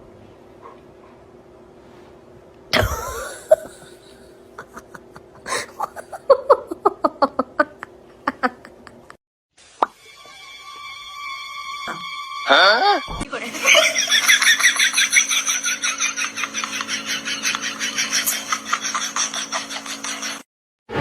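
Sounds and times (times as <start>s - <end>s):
person laughing: 2.8s - 9.2s, 13.4s - 20.0s.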